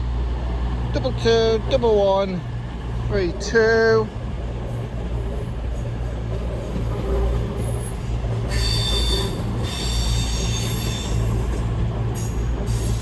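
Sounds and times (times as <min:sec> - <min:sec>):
diesel train engine humming: 0:00.0 - 0:13.0
high-pitched squeal: 0:06.6 - 0:11.6.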